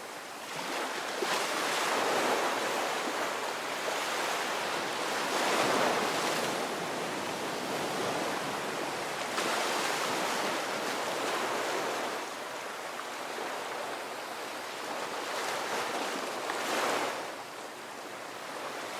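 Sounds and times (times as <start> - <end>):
ocean surf breaking on beach: 0.0 - 18.9.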